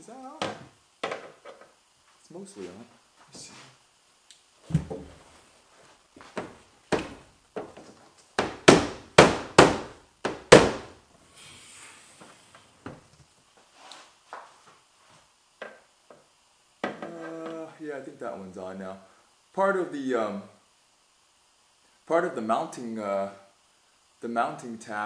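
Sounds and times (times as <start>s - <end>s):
knocks on car spoiler: 8.4s - 10.9s.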